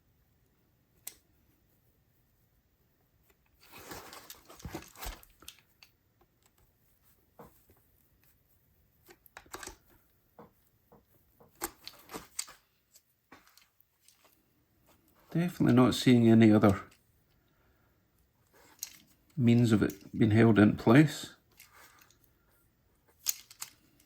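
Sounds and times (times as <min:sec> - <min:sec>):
plastic parts scraping: 0:03.6 - 0:05.7, 0:11.4 - 0:15.6, 0:18.5 - 0:20.2, 0:21.5 - 0:22.3, 0:23.1 - 0:24.0
plastic parts clicking: 0:09.1 - 0:09.8, 0:11.5 - 0:12.6, 0:18.6 - 0:20.1, 0:23.2 - 0:24.0.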